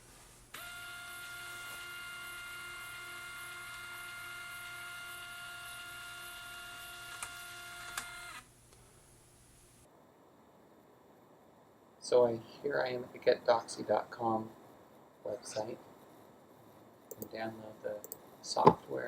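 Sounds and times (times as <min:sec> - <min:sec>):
scanner feed motor whine: 0:00.5 - 0:08.5
scanner clicks: 0:17.1 - 0:18.8.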